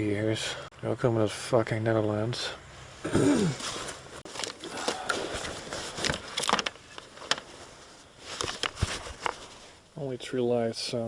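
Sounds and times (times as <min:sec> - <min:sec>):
handling clicks knocks and rustling: 0:03.6 - 0:07.6, 0:08.3 - 0:09.6.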